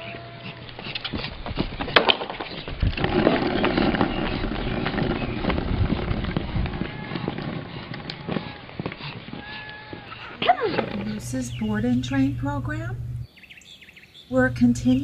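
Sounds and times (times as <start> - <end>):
skateboard rolling on asphalt: 0.8 - 11.0
sharp skateboard clacks: 0.9 - 9.7.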